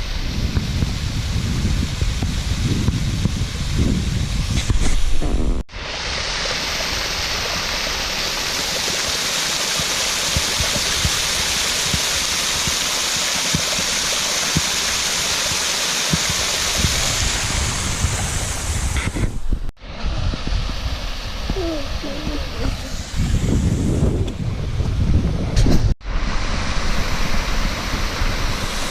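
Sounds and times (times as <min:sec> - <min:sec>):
small waterfall rushing: 0:05.7 - 0:19.1, 0:19.8 - 0:23.8, 0:26.0 - 0:28.9.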